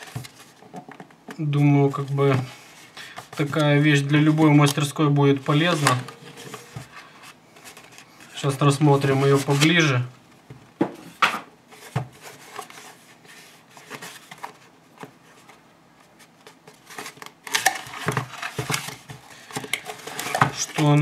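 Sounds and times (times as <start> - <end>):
packaging rustling: 11.7 - 21.0.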